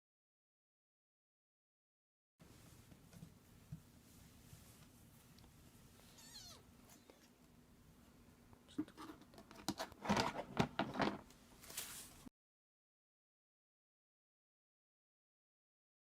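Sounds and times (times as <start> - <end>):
kitten mewing: 6.0 - 7.3.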